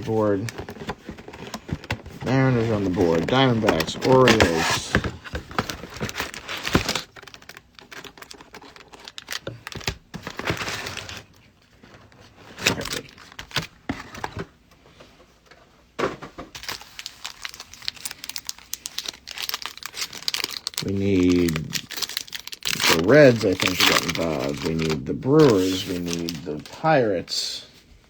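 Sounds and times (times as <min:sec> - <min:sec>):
plastic wrapper crinkling: 0:00.0 - 0:11.4, 0:16.6 - 0:26.9.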